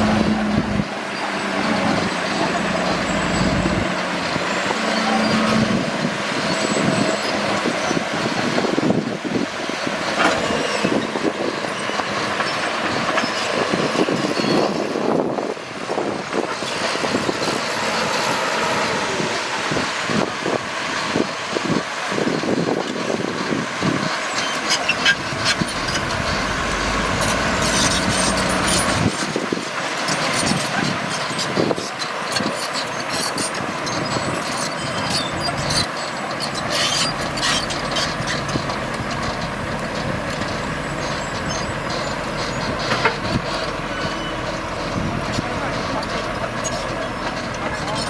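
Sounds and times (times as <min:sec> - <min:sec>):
bulldozer engine running: 0:00.0 - 0:48.0
metallic clanks from tracks: 0:24.3 - 0:31.6, 0:33.9 - 0:48.0.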